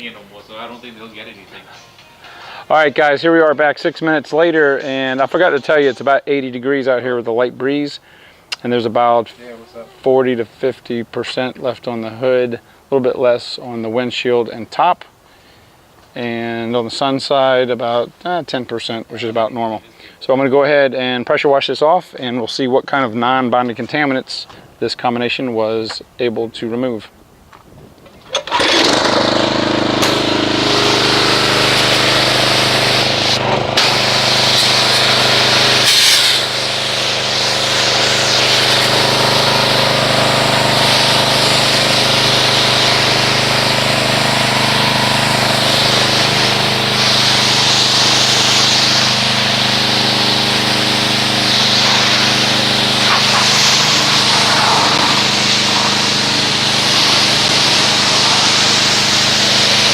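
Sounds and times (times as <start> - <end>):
pressure washer spraying: 28.5 - 59.9.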